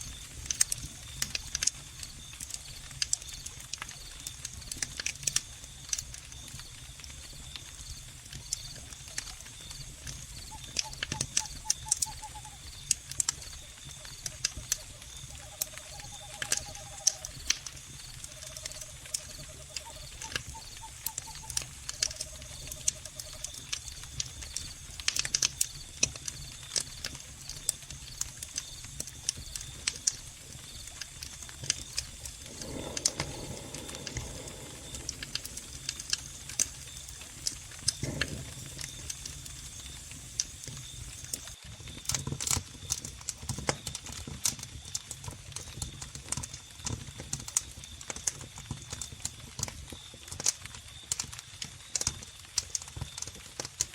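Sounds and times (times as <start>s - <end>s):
crickets trilling: 0.0s - 53.4s
wood fire crackling and popping: 0.0s - 53.9s.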